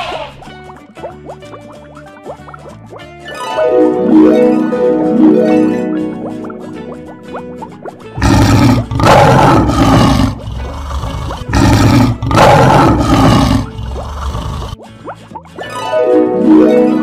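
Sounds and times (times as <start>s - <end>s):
faint plucked background music: 0.0s - 17.0s
lion roaring: 8.2s - 14.8s.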